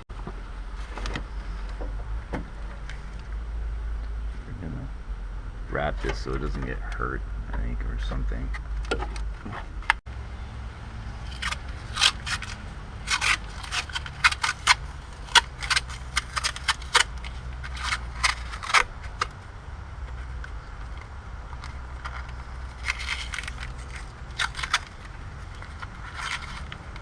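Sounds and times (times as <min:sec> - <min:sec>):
steady low hum: 0:00.1 - 0:27.0
wrapping material crinkling and ripping: 0:11.2 - 0:19.4, 0:21.6 - 0:27.0.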